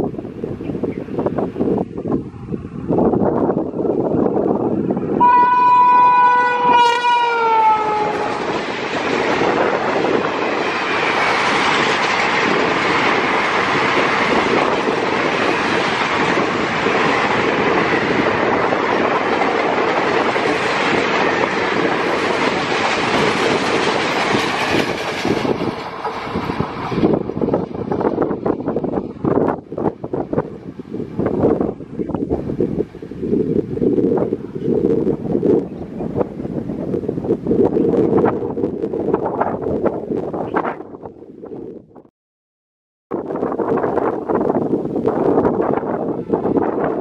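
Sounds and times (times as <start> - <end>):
train wheels on rails: 0.0 - 40.8
locomotive horn blast: 5.2 - 8.5.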